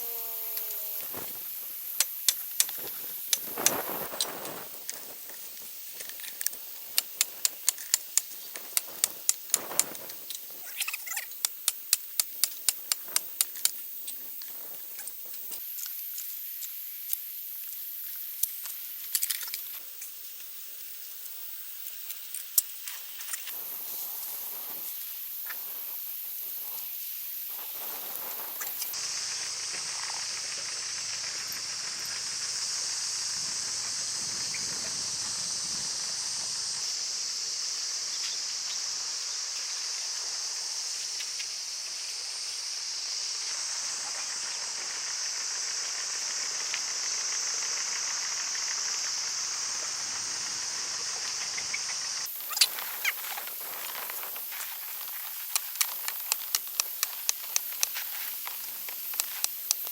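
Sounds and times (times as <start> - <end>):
high-pitched insect chorus: 0.0 - 59.9
sharp clicks: 55.4 - 59.9.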